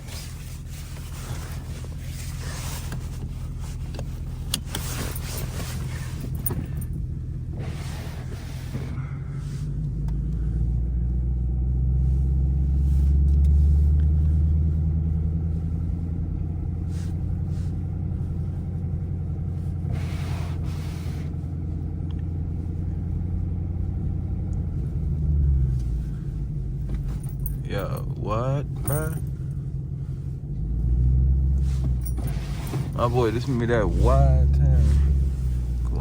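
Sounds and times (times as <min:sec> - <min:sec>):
car engine low drone: 0:00.0 - 0:36.0.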